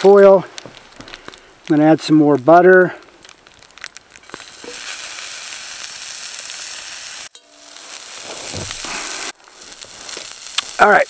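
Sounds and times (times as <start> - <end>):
butter sizzling in a pan: 3.1 - 11.0.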